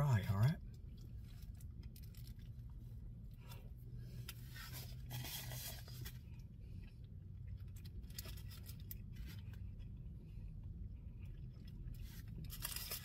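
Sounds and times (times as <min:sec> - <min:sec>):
person chewing food: 0:00.6 - 0:13.0.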